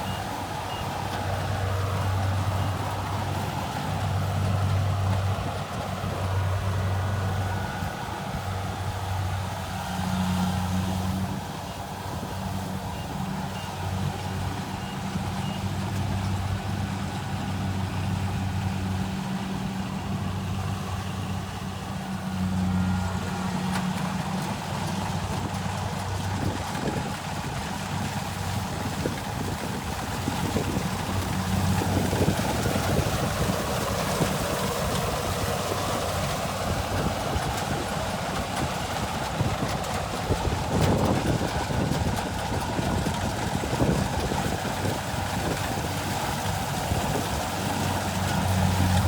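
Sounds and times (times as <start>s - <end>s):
diesel engine humming: 0.0s - 49.0s.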